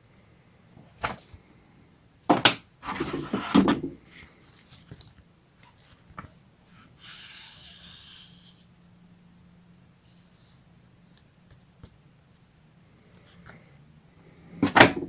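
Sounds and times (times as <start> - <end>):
bumping and scraping: 2.8 - 4.2.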